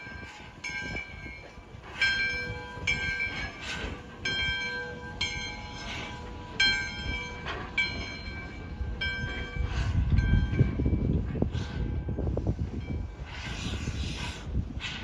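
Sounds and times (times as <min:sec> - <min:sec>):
locomotive bell ringing: 0:00.0 - 0:13.3
locomotive low rumble: 0:00.0 - 0:15.0
steam exhaust puffs: 0:08.4 - 0:15.0.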